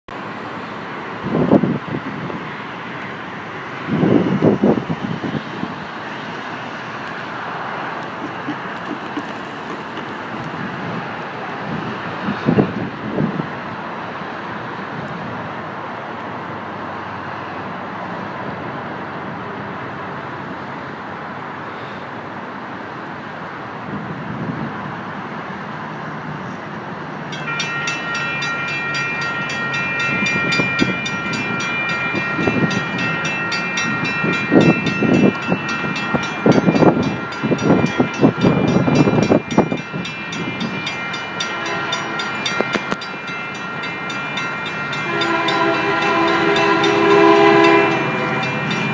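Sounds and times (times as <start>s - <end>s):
train rumble: 0.1s - 21.5s, 23.7s - 48.9s
wind buffeting microphone: 3.8s - 6.0s, 8.2s - 13.6s, 29.4s - 48.9s
train horn chord: 41.4s - 48.9s.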